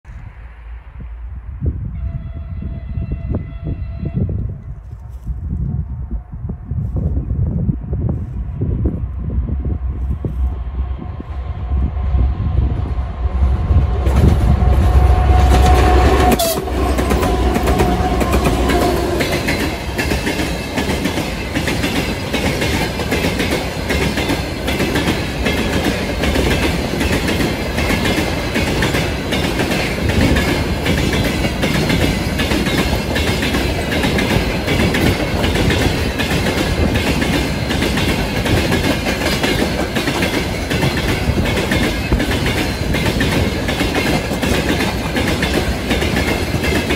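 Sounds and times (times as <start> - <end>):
steady horn-like tone: 1.8 - 4.5, 9.4 - 20.0
locomotive engine rumble: 8.1 - 46.9.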